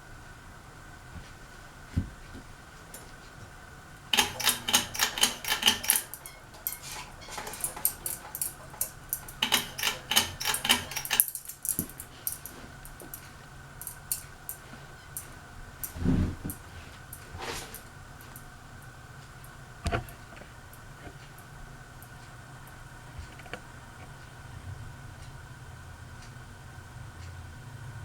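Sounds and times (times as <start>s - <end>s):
ceiling fan humming: 0.0s - 28.0s
thin fan whine: 0.0s - 28.0s
rapid irregular clicking: 4.0s - 16.0s.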